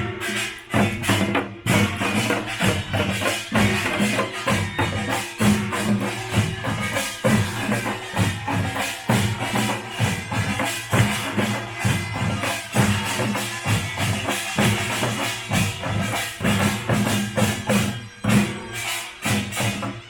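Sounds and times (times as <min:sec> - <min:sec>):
folk percussion band playing: 0:00.0 - 0:20.0.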